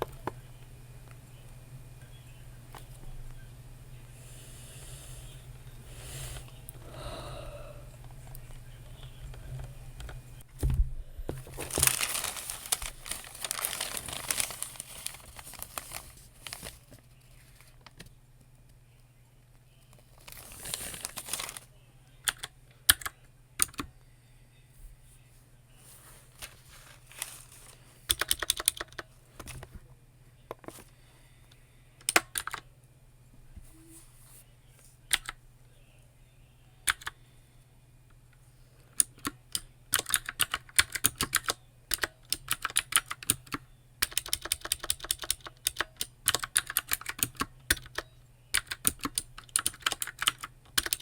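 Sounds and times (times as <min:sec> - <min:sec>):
paper crinkling: 0:11.3 - 0:18.0, 0:19.9 - 0:21.7, 0:25.8 - 0:28.6
computer keyboard typing: 0:22.3 - 0:23.9, 0:28.1 - 0:29.1, 0:32.0 - 0:32.6, 0:36.9 - 0:37.2, 0:39.0 - 0:51.0.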